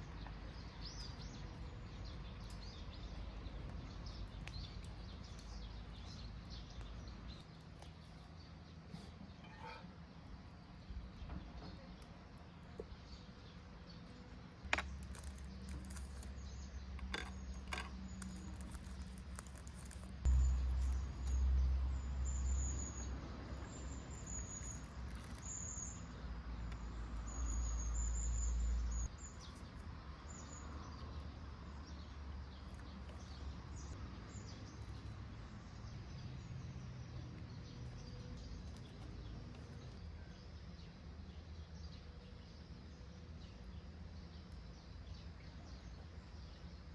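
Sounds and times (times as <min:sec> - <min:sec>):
bird chirping: 0:10.7 - 0:46.9.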